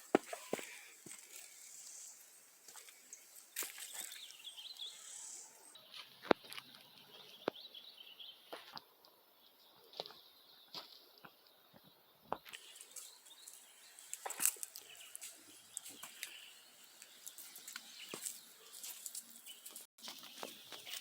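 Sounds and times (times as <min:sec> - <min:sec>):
footsteps on forest litter: 0:00.0 - 0:07.6, 0:12.4 - 0:21.0
faint bird chirps: 0:02.8 - 0:06.2, 0:12.6 - 0:21.0.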